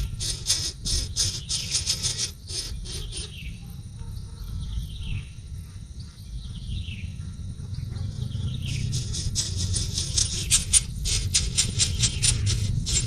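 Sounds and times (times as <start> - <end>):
crickets trilling: 0.0 - 13.0
low rumble: 6.5 - 13.0.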